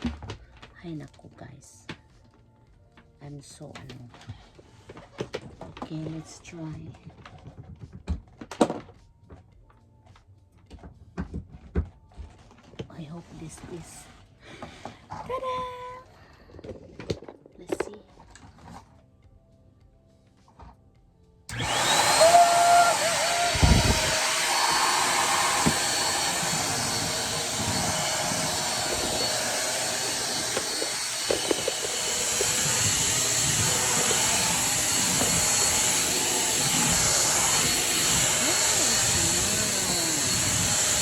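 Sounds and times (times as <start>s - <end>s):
vacuum cleaner motor whining: 21.5s - 41.0s.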